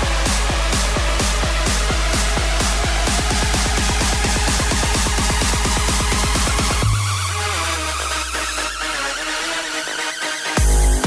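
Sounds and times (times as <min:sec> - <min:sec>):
fast kick drum roll: 0:00.0 - 0:07.0.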